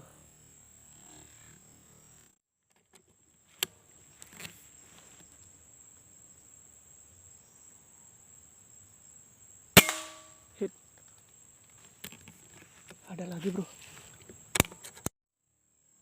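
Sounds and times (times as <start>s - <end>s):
high-pitched insect drone: 0.0s - 2.3s
soft rustle: 3.4s - 5.6s, 11.2s - 15.0s
sharp click: 14.5s - 15.1s.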